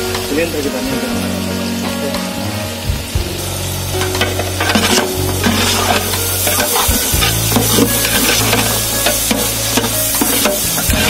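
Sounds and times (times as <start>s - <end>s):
onions sizzling in a pot: 0.0s - 11.0s
ladle scraping a pot: 4.2s - 11.0s.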